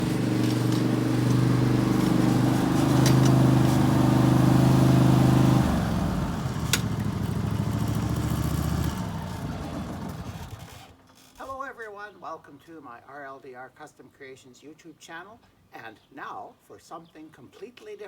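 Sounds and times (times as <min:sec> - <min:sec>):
lawn tractor engine running: 0:00.0 - 0:11.0.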